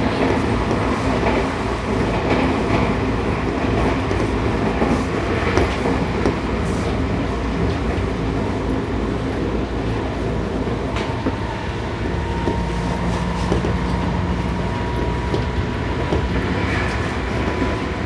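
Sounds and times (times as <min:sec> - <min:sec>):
train wheels rumbling on rail: 0:00.0 - 0:18.0
lower whining tone: 0:10.8 - 0:15.8.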